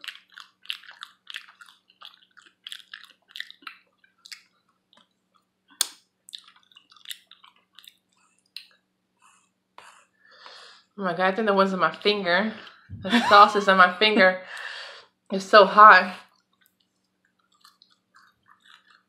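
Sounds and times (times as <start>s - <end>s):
chewing and lip-smacking: 0.0s - 10.1s, 16.2s - 19.0s.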